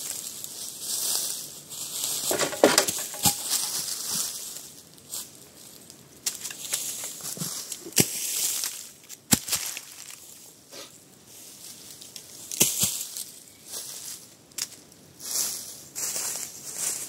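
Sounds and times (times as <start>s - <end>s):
crunching in dry leaves: 0.0s - 10.6s, 11.2s - 17.0s
sharp clicks and knocks: 2.3s - 3.8s.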